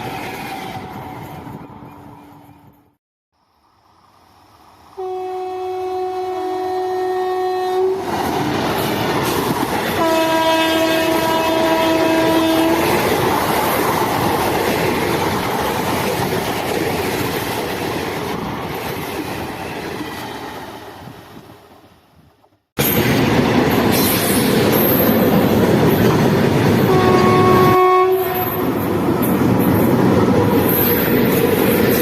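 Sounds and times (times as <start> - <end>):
train wheels rumbling on rail: 4.1 - 32.0
train horn: 5.0 - 8.1, 10.0 - 13.0, 26.9 - 28.7.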